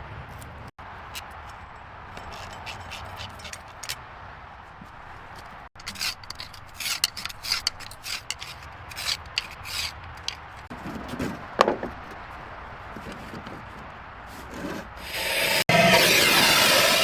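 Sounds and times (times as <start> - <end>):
rasping scraping strokes: 5.8 - 10.6, 14.3 - 17.0.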